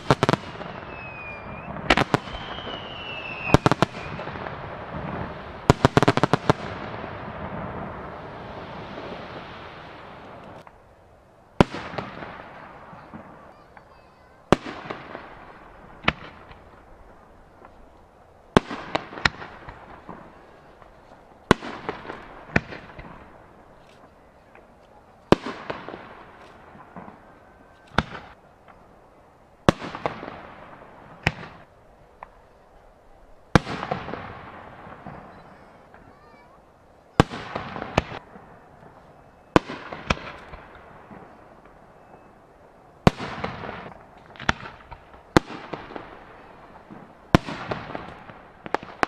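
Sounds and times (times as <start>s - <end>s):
firework shells bursting: 0.0s - 10.8s.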